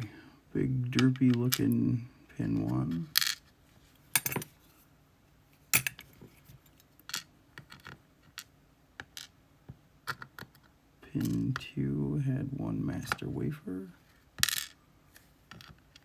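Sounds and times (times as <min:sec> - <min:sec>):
small metal lock parts clicking: 0:05.8 - 0:06.0.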